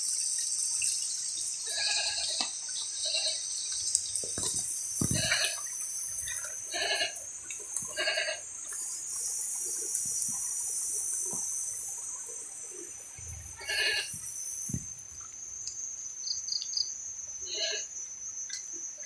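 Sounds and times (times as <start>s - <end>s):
insect chorus drone: 0.0s - 19.0s
animal bleat-like cry: 1.7s - 2.4s, 5.0s - 5.6s, 6.7s - 7.2s, 7.9s - 8.4s, 13.6s - 14.1s, 17.4s - 17.9s.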